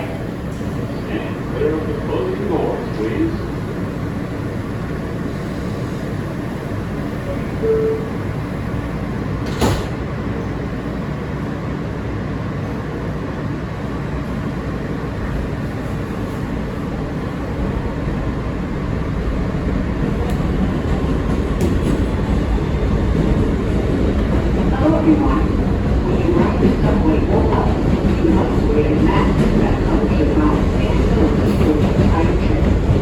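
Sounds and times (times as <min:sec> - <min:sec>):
subway car rumbling: 0:00.0 - 0:33.0
subway doors shutting: 0:00.0 - 0:33.0
brief tone: 0:07.3 - 0:08.2.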